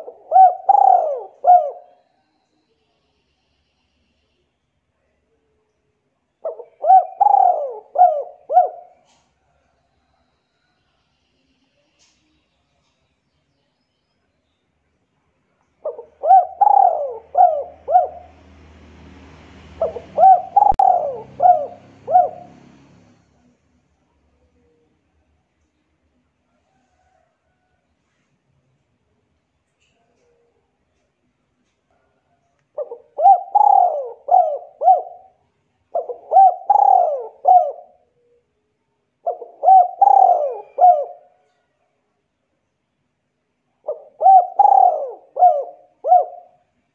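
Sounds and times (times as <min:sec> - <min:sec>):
dove cooing: 0:00.0 - 0:02.0, 0:06.4 - 0:09.5, 0:15.8 - 0:18.9, 0:19.7 - 0:23.6, 0:32.8 - 0:38.5, 0:39.2 - 0:41.6, 0:43.8 - 0:46.7
bird calling: 0:00.0 - 0:02.2, 0:06.4 - 0:09.3, 0:15.8 - 0:18.6, 0:19.8 - 0:23.2, 0:32.8 - 0:38.4, 0:39.2 - 0:41.4, 0:43.8 - 0:46.6.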